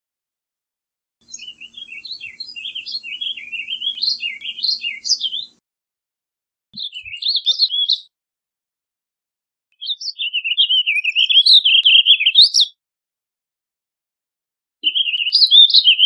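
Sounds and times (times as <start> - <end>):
bird singing warbled phrases: 1.2 - 5.6, 6.8 - 8.1, 9.7 - 12.8, 14.8 - 16.0.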